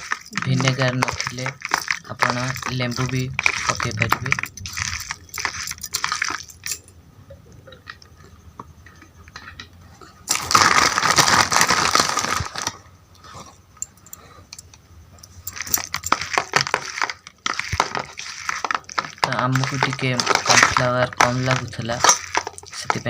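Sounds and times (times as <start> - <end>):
squishing of chicken in marinade: 0.0 - 6.7, 15.5 - 23.0.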